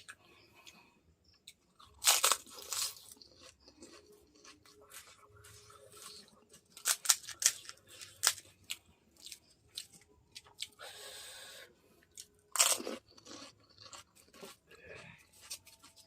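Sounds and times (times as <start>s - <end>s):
crisp shells crunching: 1.8s - 5.1s, 6.0s - 9.4s.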